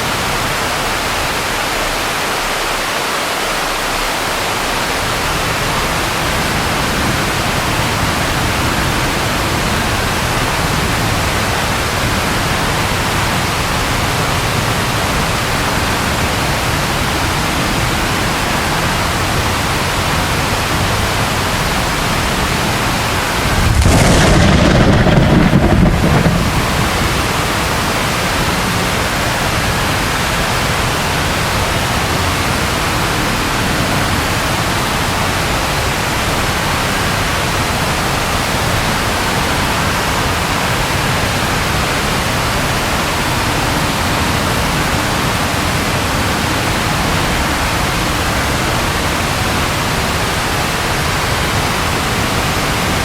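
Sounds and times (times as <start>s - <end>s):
steady rain falling: 0.0s - 53.0s
thunder rumbling: 22.8s - 28.5s.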